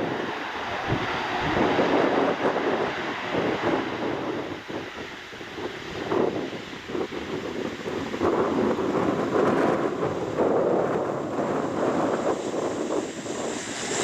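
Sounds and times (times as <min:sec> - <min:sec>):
aircraft engine drone: 0:00.0 - 0:14.0
wind buffeting microphone: 0:00.0 - 0:14.0.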